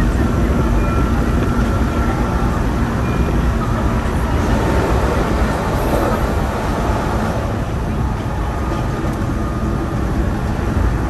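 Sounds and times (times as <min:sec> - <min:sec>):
train wheels rumbling on rail: 0:00.0 - 0:11.0
faint high tone: 0:05.6 - 0:08.6.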